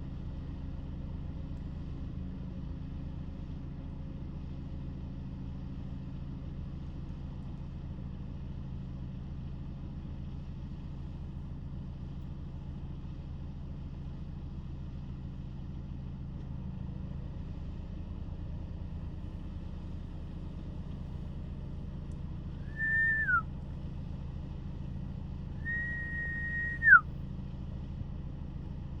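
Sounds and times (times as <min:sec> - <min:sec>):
whistled notes: 0:22.7 - 0:23.4, 0:25.6 - 0:27.0.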